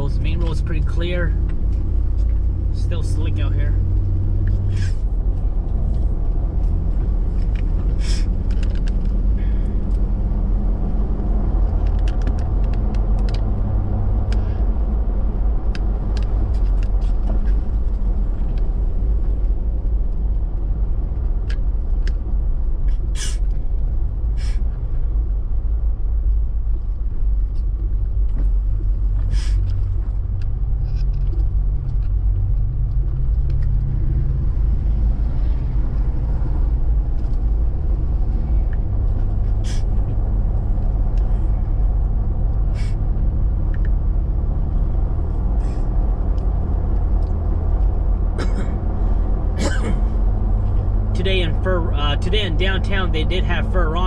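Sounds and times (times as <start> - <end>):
engine and tyre drone: 0.0 - 54.0.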